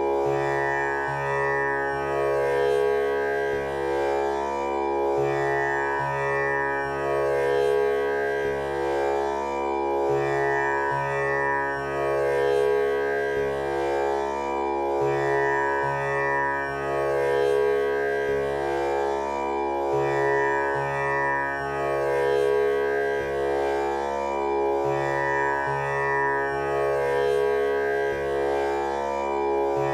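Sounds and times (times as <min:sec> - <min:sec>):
tanpura drone: 0:00.0 - 0:29.9.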